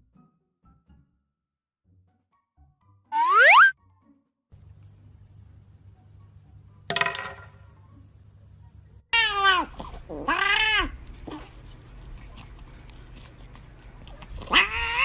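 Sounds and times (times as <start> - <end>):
cat meowing: 9.2 - 11.0, 14.4 - 15.0.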